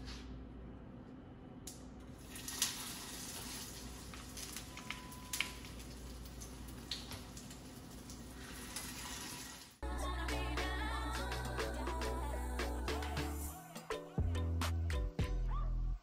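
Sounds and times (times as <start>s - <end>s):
patties sizzling in oil: 2.2s - 9.8s.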